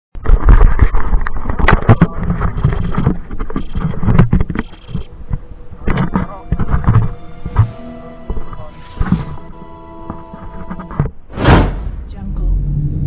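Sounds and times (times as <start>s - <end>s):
high-pitched buzzing bursts: 1.8s - 11.0s.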